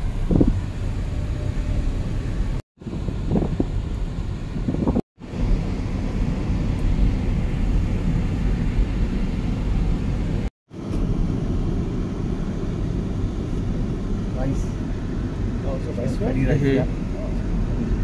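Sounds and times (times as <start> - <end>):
road and wind noise: 0.0 - 18.0
vehicle rumble: 0.0 - 18.0.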